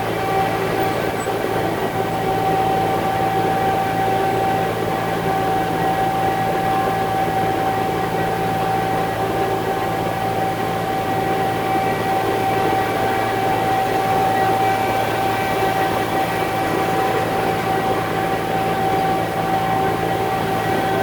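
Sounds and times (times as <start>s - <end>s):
truck diesel engine running: 0.0s - 7.2s.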